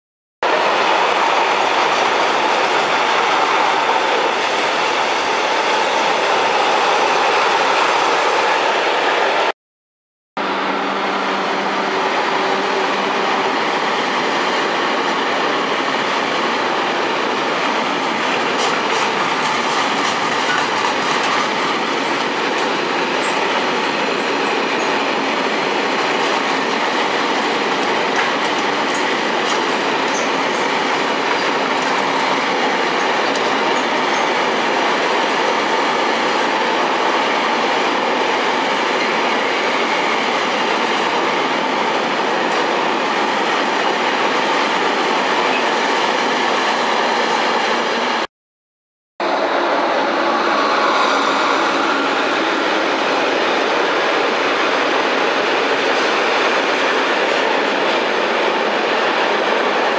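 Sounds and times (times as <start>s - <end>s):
freight train rolling past: 0.4s - 9.5s, 10.4s - 48.3s, 49.2s - 59.9s
train wheels squealing: 22.6s - 27.5s, 30.0s - 34.5s.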